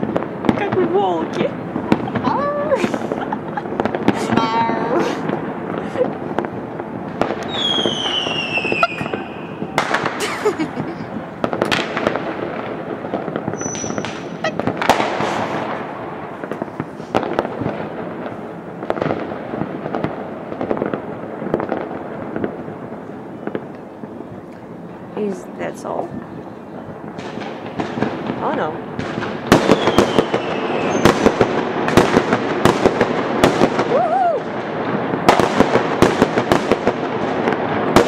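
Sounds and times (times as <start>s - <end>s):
background din of explosions: 0.0s - 38.0s
firework bangs and cracks: 0.0s - 38.0s
falling firework whistle: 7.4s - 11.0s, 13.5s - 15.7s, 29.6s - 32.0s, 33.5s - 34.7s.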